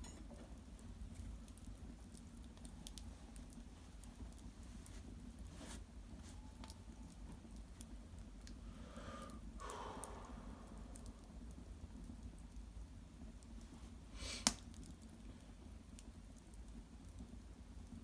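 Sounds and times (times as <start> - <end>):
fire crackling and popping: 0.0 - 18.0
soft rustle: 2.9 - 6.8.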